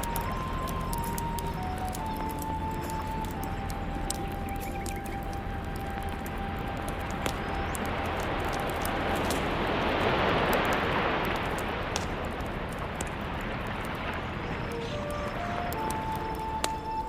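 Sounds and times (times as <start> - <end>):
campfire crackling: 0.0 - 17.0
ocean wave washing in: 7.8 - 16.0.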